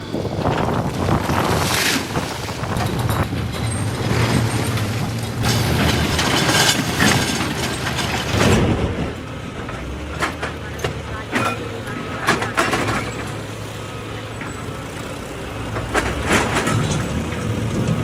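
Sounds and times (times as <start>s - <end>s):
diesel engine humming: 0.0s - 18.0s.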